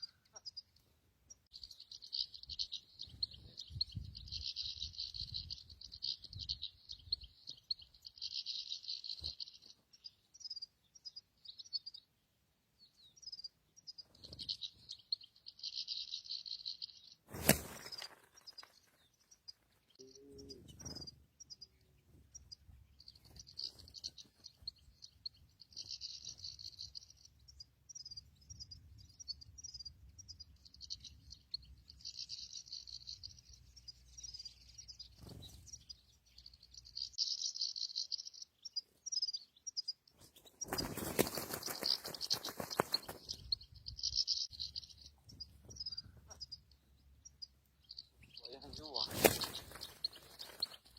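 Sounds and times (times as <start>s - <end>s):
goldfinches twittering: 17.8s - 50.9s.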